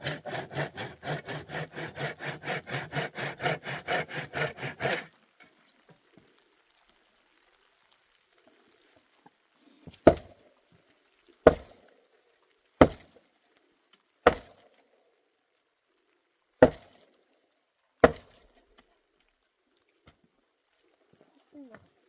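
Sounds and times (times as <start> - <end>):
axe chopping wood: 10.0 - 10.3, 11.4 - 11.8, 12.8 - 13.1, 14.2 - 14.6, 16.6 - 17.0, 18.0 - 18.4.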